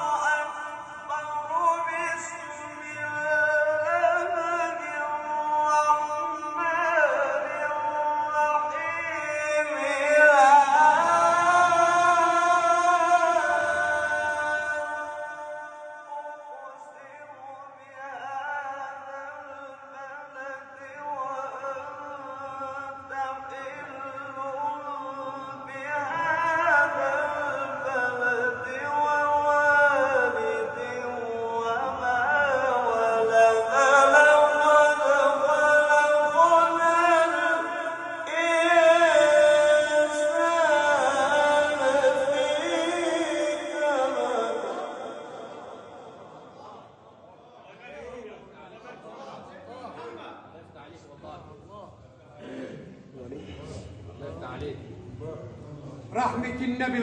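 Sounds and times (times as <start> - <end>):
man chanting: 0.0 - 57.0.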